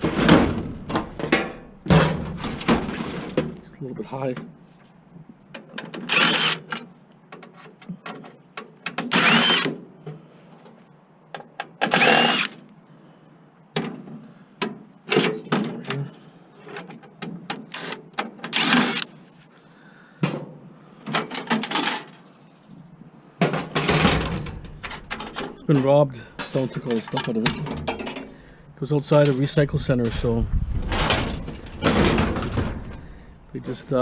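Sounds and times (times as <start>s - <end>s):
power drill whining: 6.1s - 6.7s, 9.1s - 9.7s, 11.9s - 12.6s, 17.8s - 19.1s
metal parts clattering: 23.6s - 25.6s, 26.4s - 28.3s, 30.9s - 33.0s.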